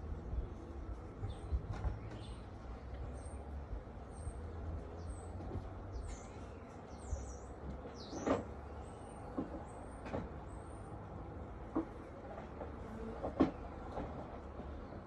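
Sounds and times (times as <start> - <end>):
wind rumble on microphone: 0.0 - 6.2
garden birds chirping: 0.0 - 15.0.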